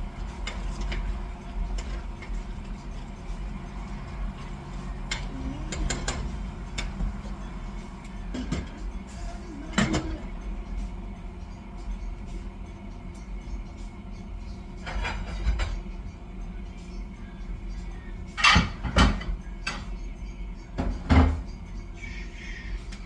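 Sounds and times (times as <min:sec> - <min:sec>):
utensil clinking against cookware: 0:00.0 - 0:07.3
steady low hum: 0:00.0 - 0:23.0.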